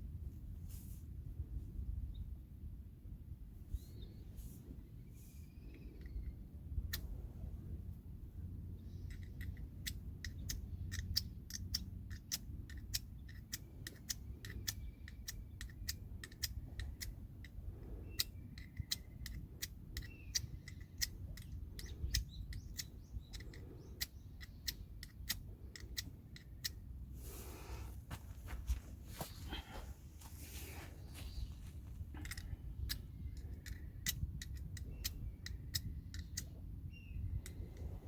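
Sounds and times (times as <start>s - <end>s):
faint bird chirps: 3.7s - 7.0s, 14.0s - 17.1s, 17.8s - 26.8s, 29.1s - 38.0s.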